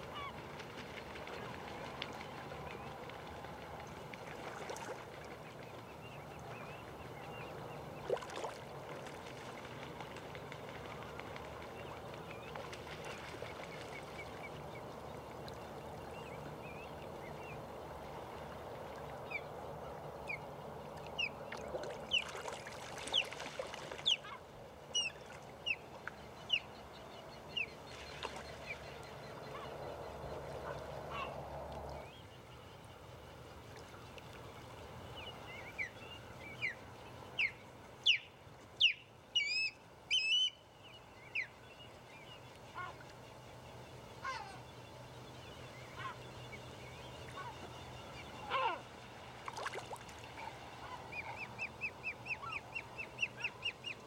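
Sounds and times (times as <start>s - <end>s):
outdoor background noise: 0.0s - 54.0s
birds calling: 41.2s - 54.0s.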